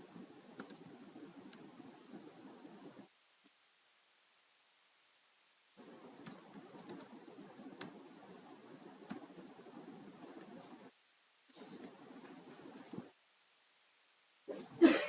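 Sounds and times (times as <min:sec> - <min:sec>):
computer keyboard typing: 0:00.1 - 0:02.2, 0:06.2 - 0:08.0.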